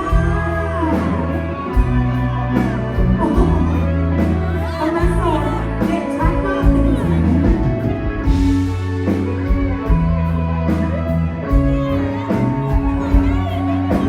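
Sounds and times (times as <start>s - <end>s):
person singing: 0.0s - 7.7s
live rock band music: 0.0s - 14.0s.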